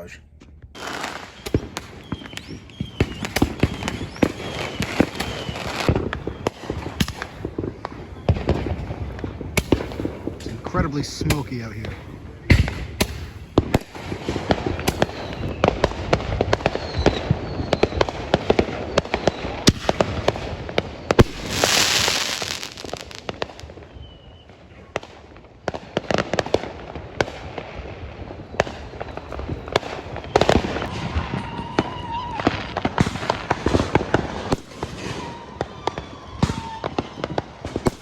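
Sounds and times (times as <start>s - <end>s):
firecrackers banging and crackling: 0.4s - 38.0s
loud firework hiss: 21.2s - 23.5s.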